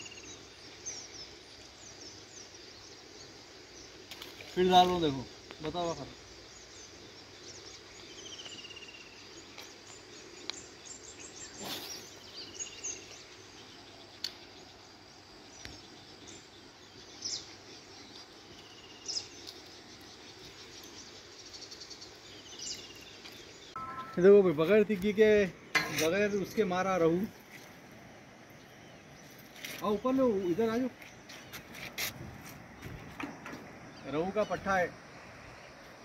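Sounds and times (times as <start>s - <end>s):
faint background hiss: 0.0s - 36.0s
high bird chirps: 22.4s - 24.8s
falling trilled bird call: 23.7s - 24.5s.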